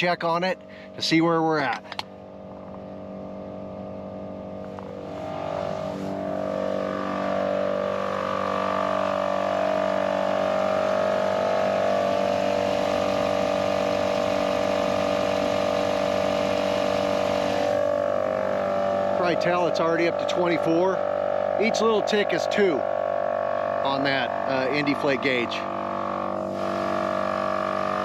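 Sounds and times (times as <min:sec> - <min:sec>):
truck engine idling: 0:00.0 - 0:09.0
air compressor humming: 0:00.0 - 0:28.0.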